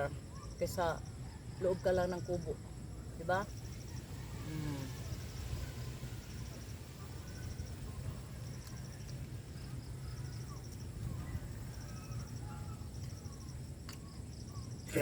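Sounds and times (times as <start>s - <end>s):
faint bird chirps: 0.0s - 15.0s
insects chirping: 0.0s - 15.0s.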